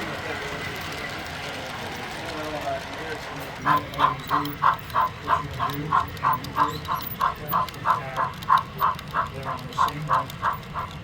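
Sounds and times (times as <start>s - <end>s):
model steam locomotive chuffing: 0.0s - 11.0s.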